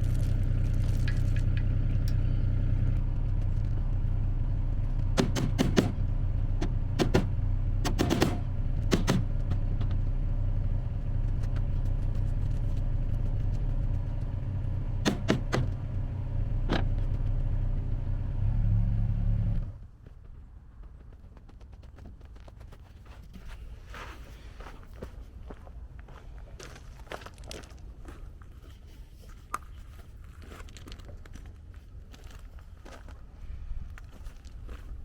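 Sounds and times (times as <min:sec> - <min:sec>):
vehicle engine idling: 0:00.0 - 0:20.9
sharp clicks and knocks: 0:04.9 - 0:10.0, 0:15.0 - 0:15.8.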